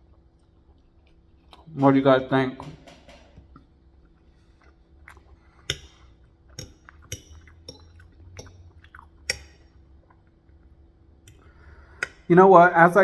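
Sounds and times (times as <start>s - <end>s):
person chewing food: 0.0s - 1.8s, 3.4s - 12.3s
sharp wet clicks: 3.5s - 12.3s.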